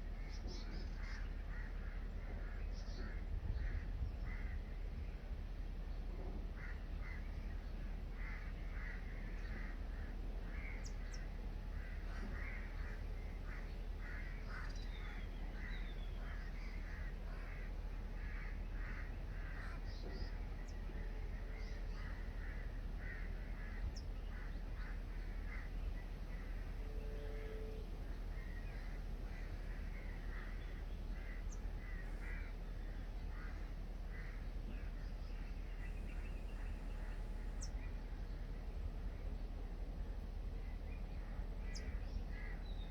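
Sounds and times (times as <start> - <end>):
steady low rumble: 0.0 - 42.9
birds calling in harsh notes: 6.5 - 42.9.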